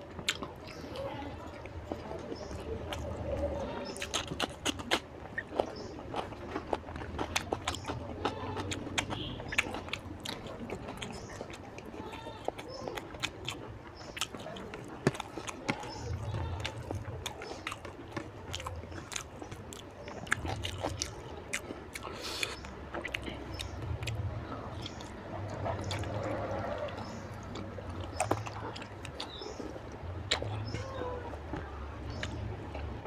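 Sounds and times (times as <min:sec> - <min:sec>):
wet chewing and squishing: 0:00.0 - 0:33.0
lip-smacking clicks: 0:12.5 - 0:30.8.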